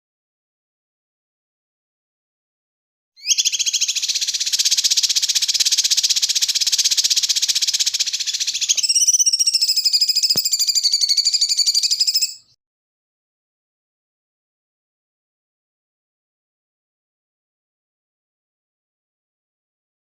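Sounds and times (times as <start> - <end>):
songbird buzzy trill: 3.2 - 12.6.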